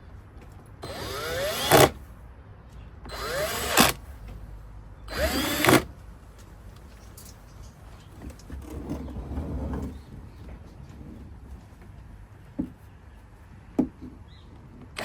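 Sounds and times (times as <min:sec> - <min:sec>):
power drill driving screws: 0:00.8 - 0:02.0, 0:03.1 - 0:04.0, 0:05.1 - 0:05.9.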